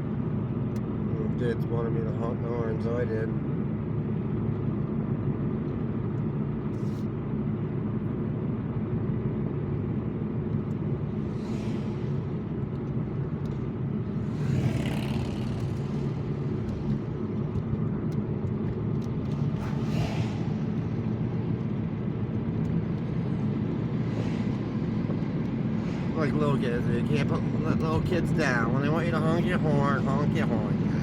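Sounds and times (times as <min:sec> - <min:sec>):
engine and tyre rumble: 0:00.0 - 0:31.0
rushing noise: 0:10.9 - 0:18.1, 0:18.9 - 0:31.0.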